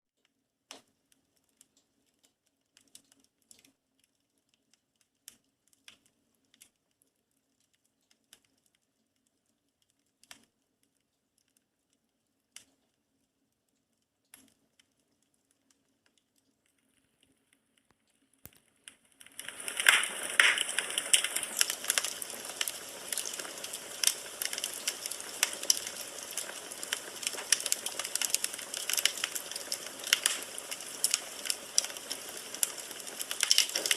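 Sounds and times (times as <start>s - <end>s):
firewood crackling and popping: 0.7s - 13.3s, 14.3s - 33.9s.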